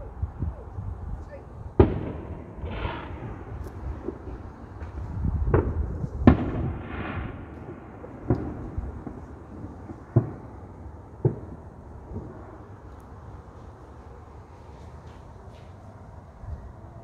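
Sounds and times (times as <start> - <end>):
fireworks bangs: 1.7 - 12.9.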